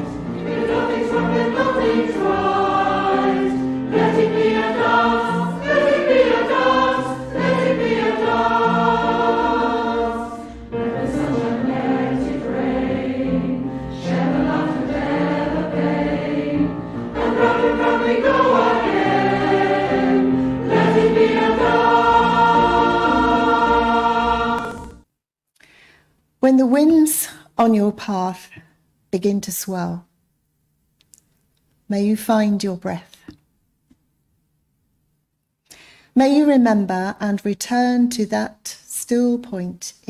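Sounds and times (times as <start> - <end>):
choir singing a hymn: 0.0 - 24.9.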